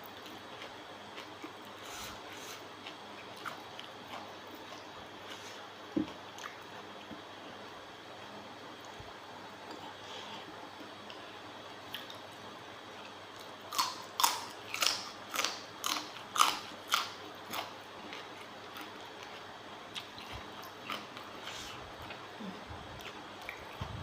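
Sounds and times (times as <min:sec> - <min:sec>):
person chewing crunchy food: 0:00.2 - 0:07.1, 0:13.4 - 0:22.3.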